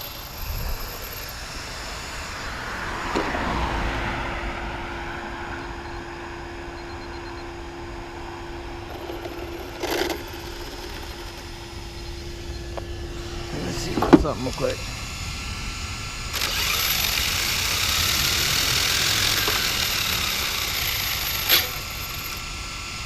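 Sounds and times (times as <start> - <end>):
steady hum: 0.0 - 23.0
road vehicle passing: 1.4 - 14.8.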